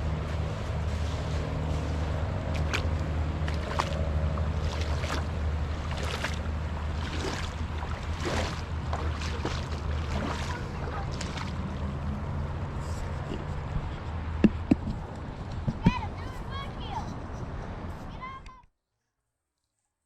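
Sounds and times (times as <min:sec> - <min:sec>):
water splashing in river: 0:00.8 - 0:12.7.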